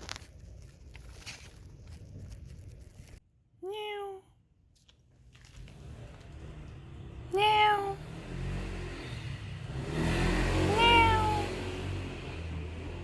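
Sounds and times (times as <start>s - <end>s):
cat meowing: 7.3s - 8.0s, 10.7s - 11.5s.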